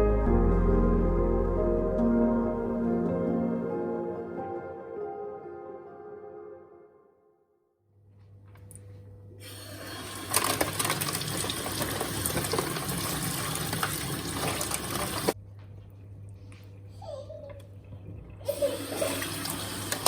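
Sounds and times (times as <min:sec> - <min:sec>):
water running from tap: 0:09.4 - 0:15.4, 0:18.5 - 0:20.0.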